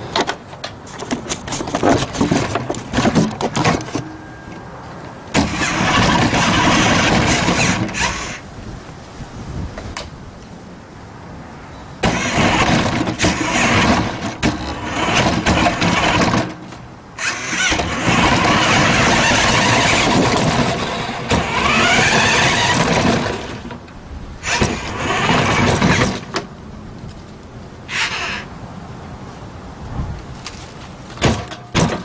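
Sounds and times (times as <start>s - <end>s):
rc truck motor whine: 5.4s - 8.4s, 12.0s - 16.5s, 17.2s - 23.8s, 24.4s - 26.3s, 27.9s - 28.5s.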